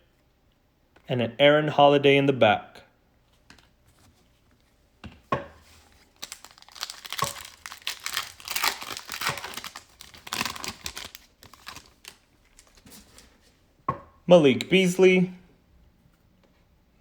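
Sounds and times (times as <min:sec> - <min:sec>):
foil wrapper tearing and crinkling: 0:05.9 - 0:12.9.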